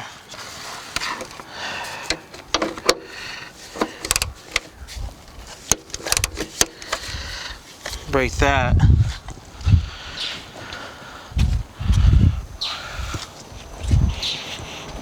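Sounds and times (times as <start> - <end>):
wrench and socket clicking: 3.8 - 4.7, 5.6 - 7.1.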